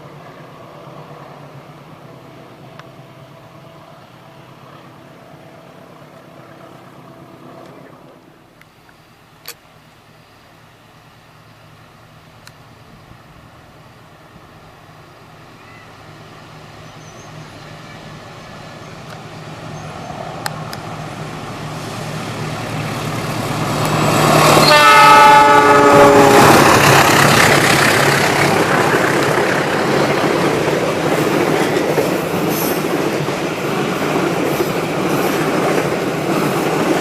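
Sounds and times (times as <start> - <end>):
diesel train engine hum: 0.0 - 37.0
train horn chord: 24.4 - 26.8.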